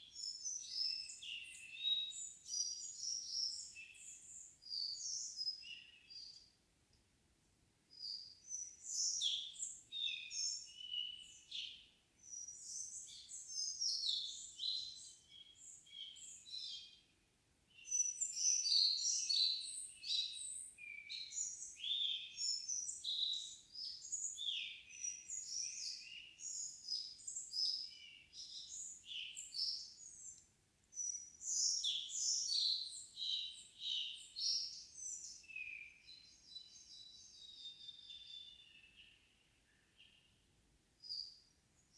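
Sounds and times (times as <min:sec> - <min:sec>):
songbirds singing: 0:00.0 - 0:06.6, 0:07.9 - 0:41.9.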